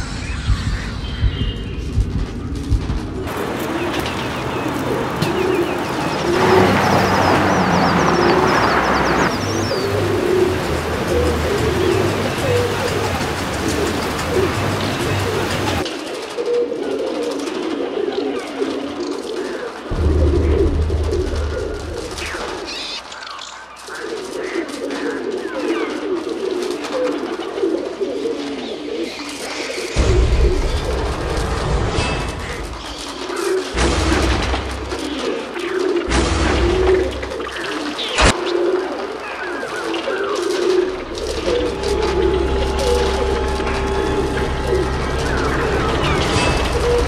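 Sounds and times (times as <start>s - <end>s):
higher bird chirps: 0.0s - 2.6s, 3.3s - 15.8s, 39.2s - 47.0s
rushing noise: 0.0s - 15.9s, 19.9s - 23.2s, 30.0s - 47.0s
birds cooing: 0.0s - 47.0s.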